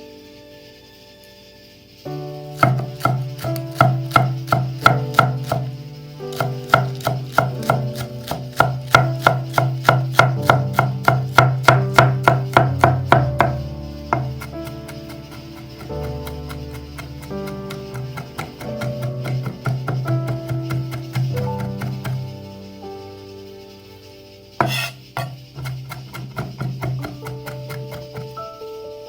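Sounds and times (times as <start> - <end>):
background music: 0.0 - 29.0
knife chopping on cutting board: 2.6 - 5.7, 6.3 - 13.6, 14.2 - 22.3, 24.6 - 28.4.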